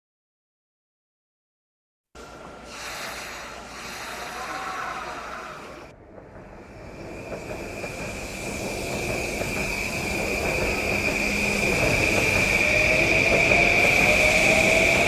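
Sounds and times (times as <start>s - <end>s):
electric train pulling out: 2.2s - 15.0s
train motor whine rising: 6.6s - 15.0s.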